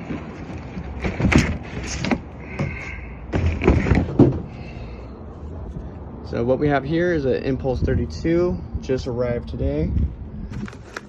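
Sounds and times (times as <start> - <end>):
phone knocks and scrapes: 0.0 - 4.6.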